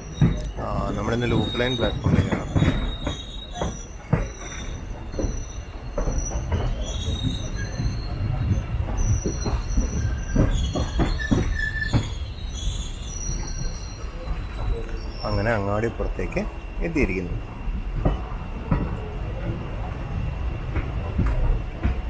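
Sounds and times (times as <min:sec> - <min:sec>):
wheels knocking over rail joints: 0:00.0 - 0:05.4, 0:06.0 - 0:16.3
train wheels squealing: 0:00.0 - 0:20.3
train rumbling: 0:00.0 - 0:22.0.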